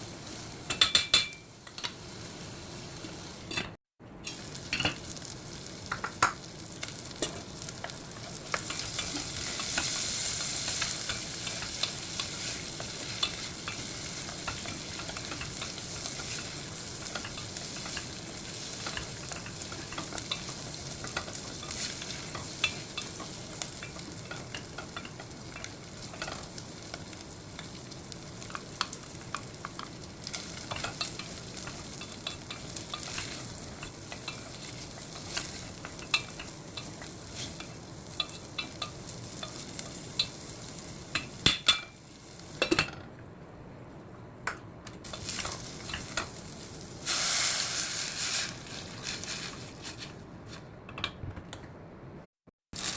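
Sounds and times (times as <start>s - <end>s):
food sizzling in a pan: 0.0s - 43.0s, 45.0s - 50.6s, 52.7s - 52.9s.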